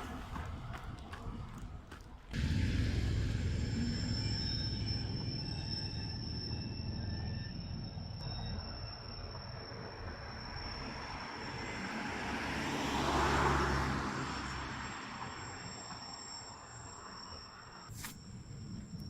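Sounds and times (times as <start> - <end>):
train passing close by: 0.0 - 19.0.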